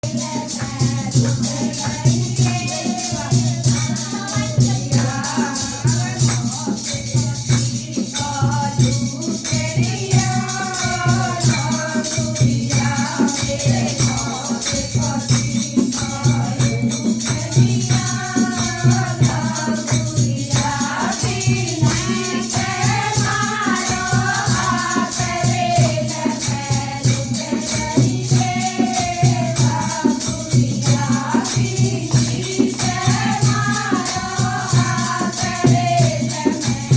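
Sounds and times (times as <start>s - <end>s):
devotional folk song singing: 0.0s - 36.9s
fast drum beat: 0.0s - 36.9s
jingling shakers: 0.0s - 36.9s.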